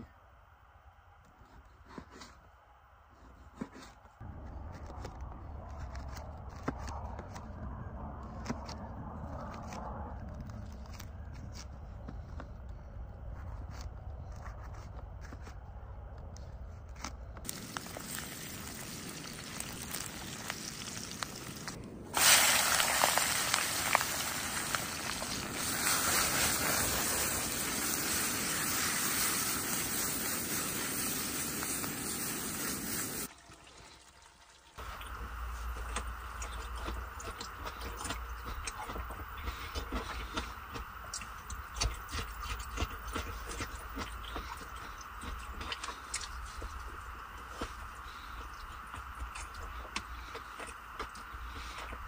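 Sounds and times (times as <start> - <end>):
food sizzling in hot oil: 17.5 - 33.3.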